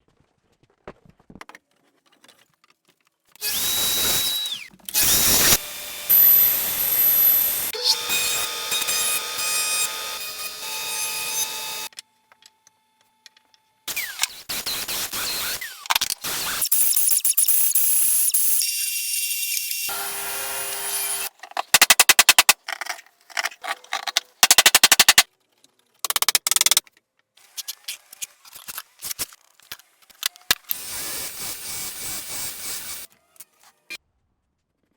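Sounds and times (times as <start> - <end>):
power tools running: 3.4 - 11.9, 19.4 - 21.3, 30.7 - 33.1
scattered clicks: 24.4 - 25.3.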